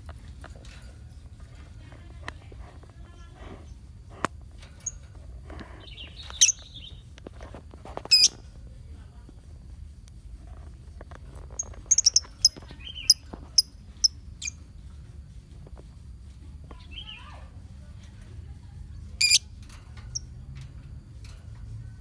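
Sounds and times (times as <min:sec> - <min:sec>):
lovebirds chirping: 0:05.8 - 0:07.1, 0:11.6 - 0:14.6.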